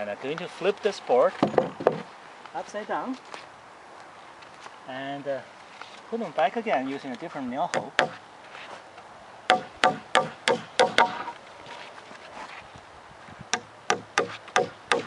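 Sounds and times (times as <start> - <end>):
hammer striking nails: 1.4 - 2.1, 7.7 - 8.2, 9.5 - 11.4, 13.5 - 15.0.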